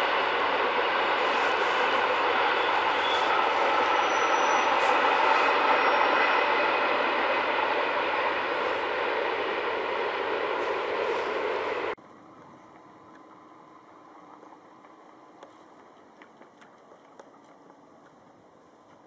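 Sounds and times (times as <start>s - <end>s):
train wheels rushing on rails: 0.0s - 12.0s.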